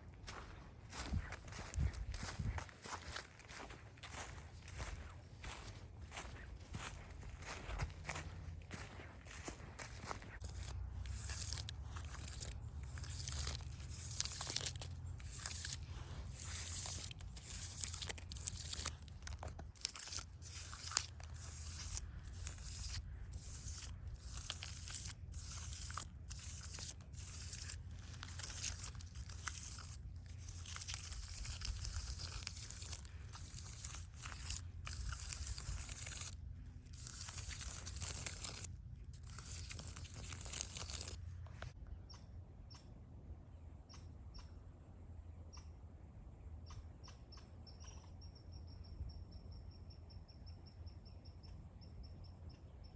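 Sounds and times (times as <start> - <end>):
dry plant material scratching: 0.3 - 41.7.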